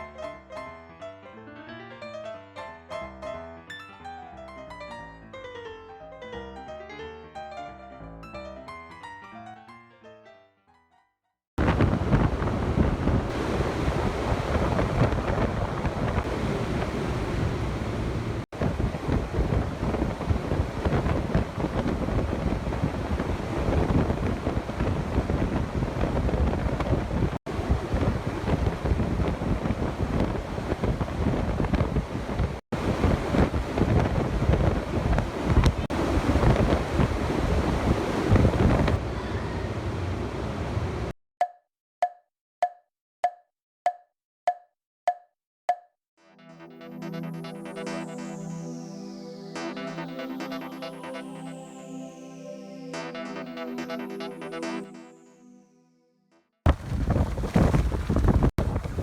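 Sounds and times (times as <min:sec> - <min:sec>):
wind buffeting microphone: 0:11.6 - 0:41.1, 0:56.7 - 0:59.0.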